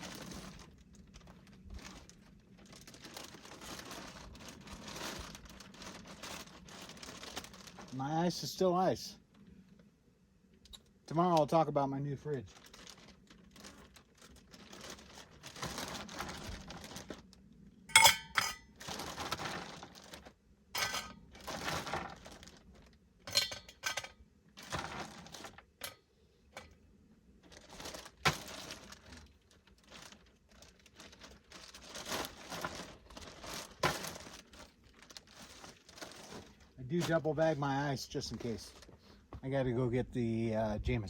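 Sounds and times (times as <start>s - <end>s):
plastic bag crinkling: 0.0s - 8.0s, 12.3s - 23.0s, 24.6s - 26.0s, 27.4s - 37.5s.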